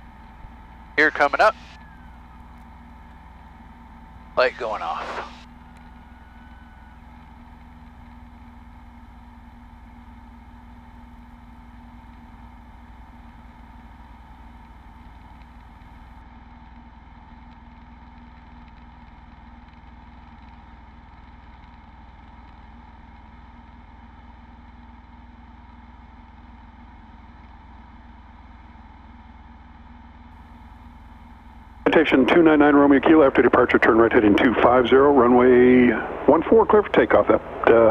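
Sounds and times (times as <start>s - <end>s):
aircraft piston engine idling: 0.0s - 7.5s, 31.8s - 37.9s.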